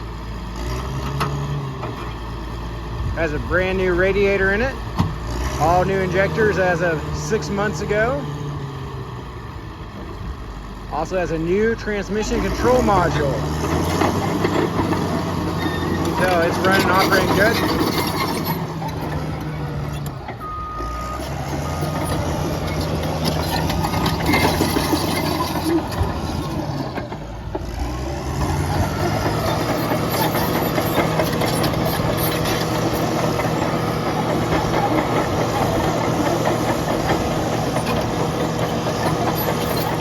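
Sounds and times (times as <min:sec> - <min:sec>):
bulldozer diesel engine running: 0:00.0 - 0:40.0.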